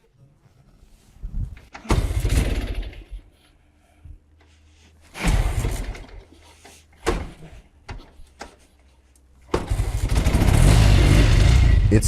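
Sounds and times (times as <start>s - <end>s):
motorcycle engine starting: 1.9s - 3.2s, 9.5s - 12.0s.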